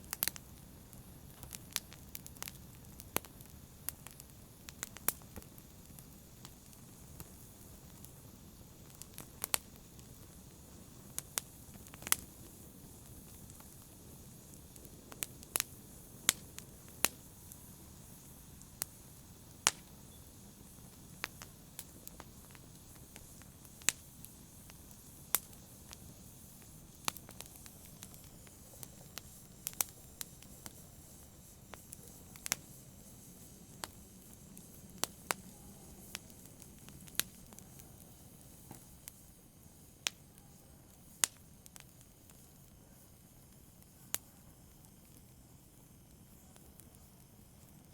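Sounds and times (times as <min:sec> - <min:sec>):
campfire hissing: 0:00.0 - 0:47.9
wood popping and crackling: 0:01.3 - 0:08.1, 0:08.8 - 0:26.0.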